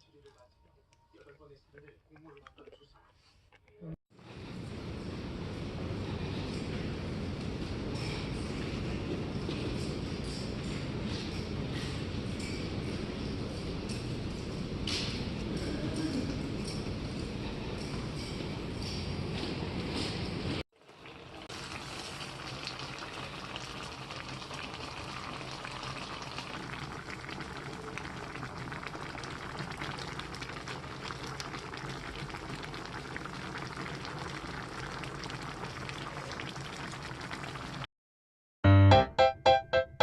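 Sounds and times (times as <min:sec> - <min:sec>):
liquid boiling and bubbling: 0:04.1 - 0:37.9
keyboard music with even beat: 0:38.6 - 0:40.0.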